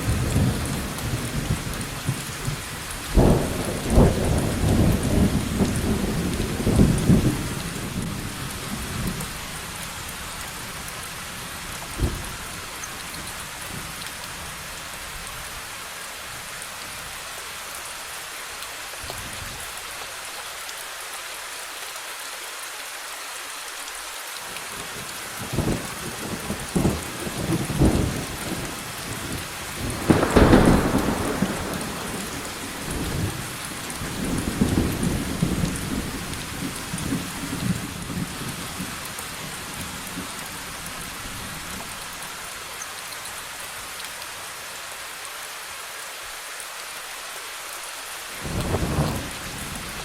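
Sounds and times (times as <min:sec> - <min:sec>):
steady rain: 0:00.0 - 0:50.0
thunder cracks and rumbling: 0:00.1 - 0:08.3, 0:25.5 - 0:38.9, 0:48.4 - 0:49.9.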